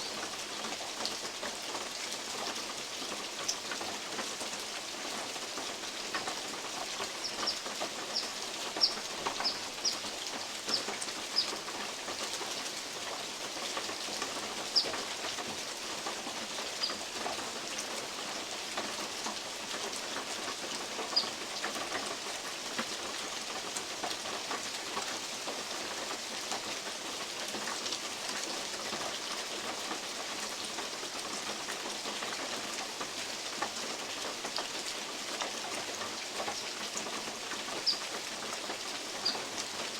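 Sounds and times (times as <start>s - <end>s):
steady rain: 0.0s - 39.9s
bird chirping: 7.2s - 10.0s, 37.8s - 38.0s, 39.2s - 39.4s.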